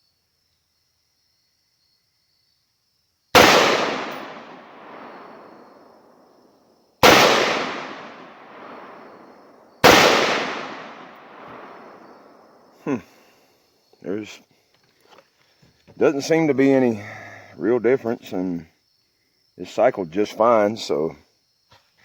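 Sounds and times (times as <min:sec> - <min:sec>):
rifle cycling: 0:03.4 - 0:05.5, 0:07.0 - 0:09.2, 0:09.8 - 0:12.0
rifle shots with rolling echo: 0:03.4 - 0:06.2, 0:07.0 - 0:12.7.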